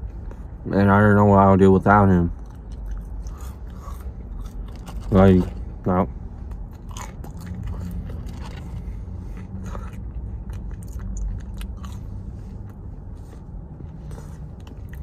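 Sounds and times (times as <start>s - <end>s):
steady low rumble: 0.0s - 15.0s
person chewing crunchy food: 2.3s - 5.7s, 6.4s - 15.0s.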